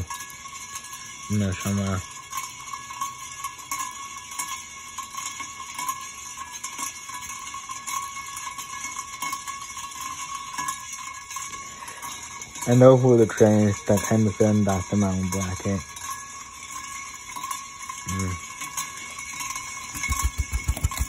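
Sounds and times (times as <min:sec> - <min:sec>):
faint irregular ticks: 0:00.0 - 0:21.0
ceiling fan running: 0:19.8 - 0:21.0.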